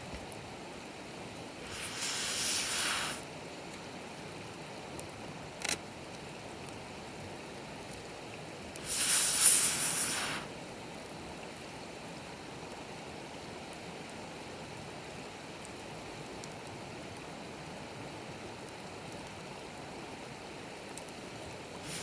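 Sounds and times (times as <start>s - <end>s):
campfire hissing: 1.4s - 3.4s, 8.7s - 10.9s, 21.8s - 22.0s
fire popping: 1.6s - 3.2s, 8.8s - 10.6s.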